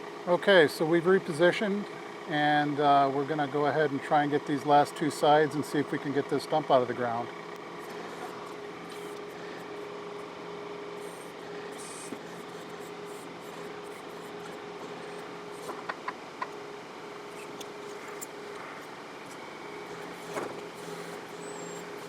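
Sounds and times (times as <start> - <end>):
tractor diesel engine running: 1.0 - 22.0.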